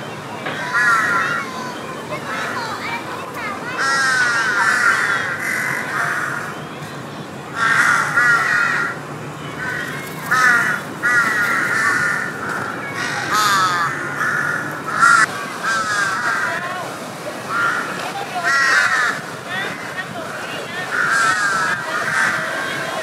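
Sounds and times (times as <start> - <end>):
birds calling: 0.0 - 23.0.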